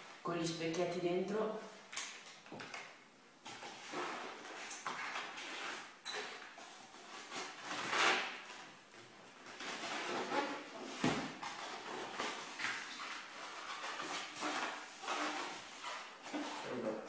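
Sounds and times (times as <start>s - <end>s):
cardboard and plastic rustling: 3.4s - 17.0s.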